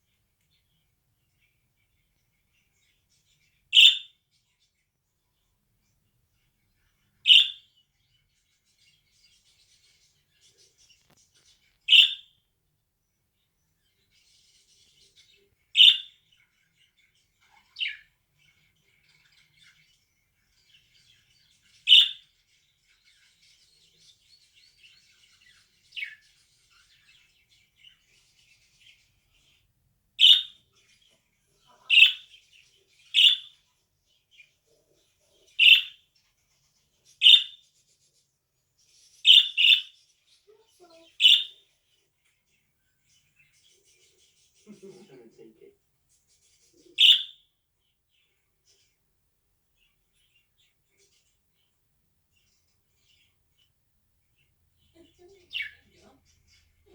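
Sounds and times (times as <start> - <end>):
soft bird chatter: 0.0 - 56.9
budgerigar calling: 3.8 - 4.1, 7.3 - 7.6, 11.9 - 12.3, 15.8 - 16.1, 21.9 - 22.2, 30.2 - 30.6, 31.8 - 32.3, 33.2 - 33.5, 35.6 - 36.0, 39.3 - 39.9, 47.0 - 47.4.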